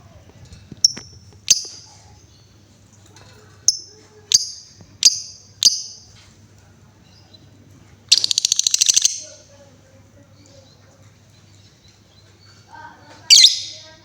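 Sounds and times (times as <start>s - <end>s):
lovebird ticking trill: 0.8s - 1.9s, 3.7s - 6.1s, 8.1s - 9.4s
lovebird chirp: 0.8s - 2.7s, 3.6s - 6.2s, 8.1s - 9.5s, 13.2s - 14.0s.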